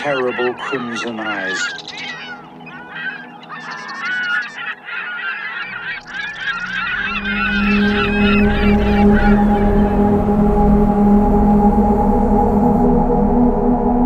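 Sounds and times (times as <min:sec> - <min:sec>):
flock of birds calling: 0:00.0 - 0:10.7
low steady drone: 0:00.0 - 0:14.0.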